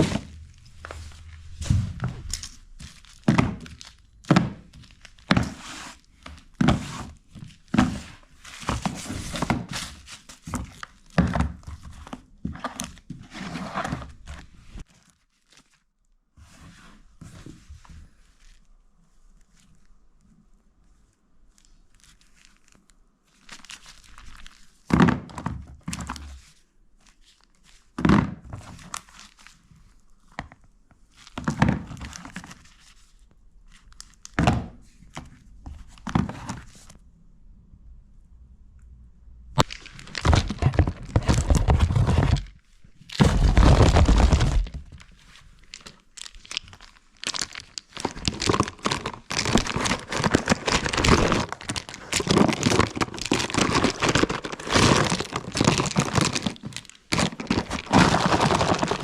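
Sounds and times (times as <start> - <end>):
rustling and crinkling: 0.0 - 37.0, 39.6 - 59.0
knocks and thunks of objects: 1.5 - 2.4, 3.2 - 5.6.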